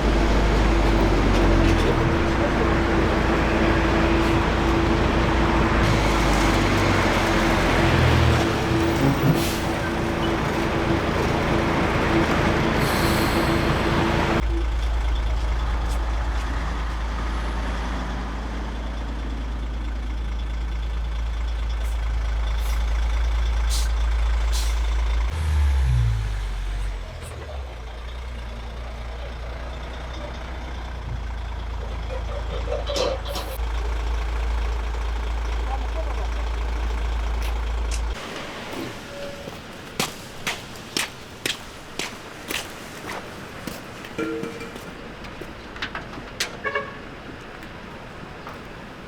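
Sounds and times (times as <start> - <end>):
truck engine rumble: 0.0 - 49.0
air hissing: 12.8 - 14.3.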